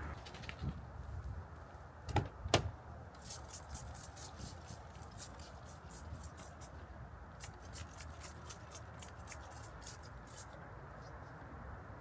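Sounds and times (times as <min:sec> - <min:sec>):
low steady rumble: 0:00.0 - 0:01.9.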